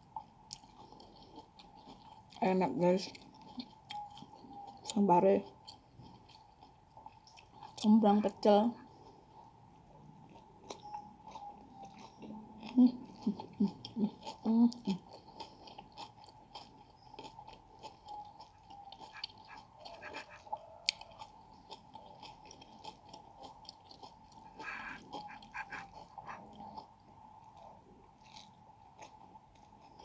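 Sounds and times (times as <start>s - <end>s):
chewing food with mouth smacks: 0.0s - 2.4s, 3.0s - 30.0s
small crunches: 15.2s - 26.9s.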